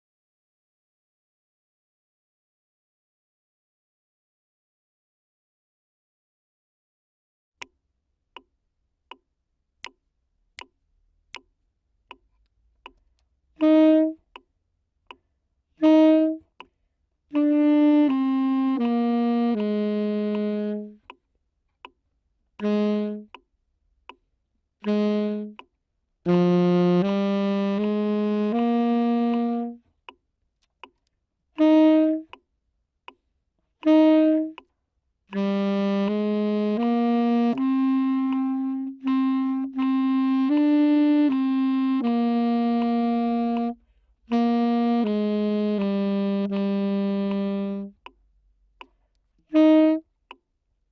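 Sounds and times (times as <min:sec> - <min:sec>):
evenly spaced clicks: 0:08.4 - 0:13.7, 0:29.2 - 0:31.7
tenor saxophone melody: 0:13.5 - 0:14.5, 0:15.8 - 0:21.2, 0:22.6 - 0:23.5, 0:24.8 - 0:30.0, 0:31.5 - 0:32.4, 0:33.8 - 0:48.1, 0:49.4 - 0:50.3.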